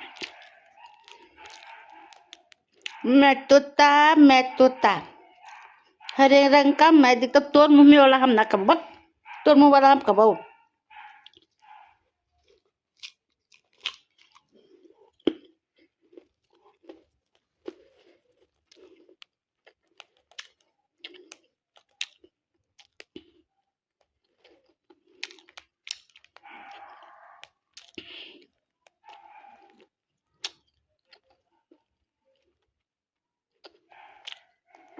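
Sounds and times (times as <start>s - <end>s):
parrot crunching with beak: 0.0s - 3.0s, 5.3s - 6.2s, 10.9s - 32.9s, 33.5s - 34.9s
parrot vocal sound: 0.0s - 3.1s, 4.6s - 6.2s, 26.4s - 27.6s, 29.0s - 29.8s.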